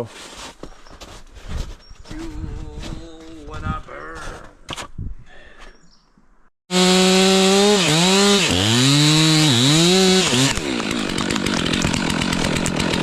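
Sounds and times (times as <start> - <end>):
chainsaw running at high revs: 6.7 - 13.0.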